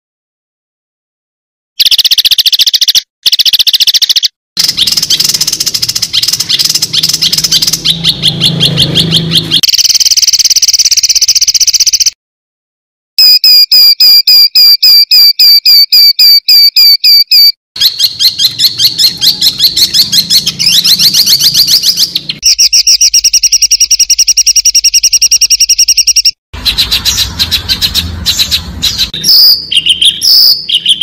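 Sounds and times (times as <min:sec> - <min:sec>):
loud sharp bird call: 0:01.8 - 0:09.6, 0:17.3 - 0:22.4, 0:26.6 - 0:31.0
songbird trills and chattering: 0:01.8 - 0:09.8, 0:17.3 - 0:22.6, 0:26.6 - 0:31.0.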